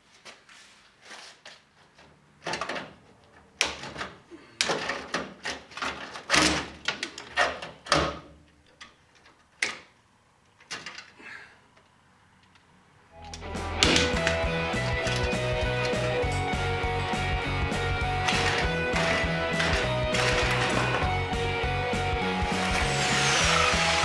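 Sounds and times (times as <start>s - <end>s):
sheet metal scraping and knocking: 13.8s - 16.6s, 17.2s - 21.2s.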